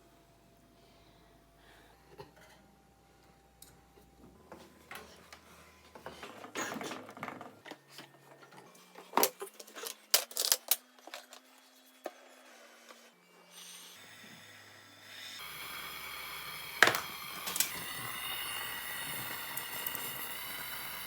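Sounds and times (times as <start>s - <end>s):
tools clicking and clattering: 6.1s - 11.4s.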